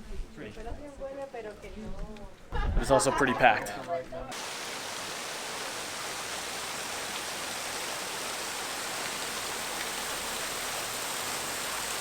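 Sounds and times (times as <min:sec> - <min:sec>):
hiss of falling water: 0:04.3 - 0:12.0.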